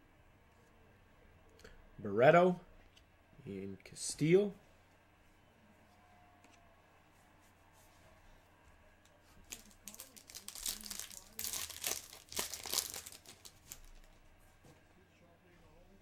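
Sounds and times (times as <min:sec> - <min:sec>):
card pack wrapper tearing: 0:09.4 - 0:14.1.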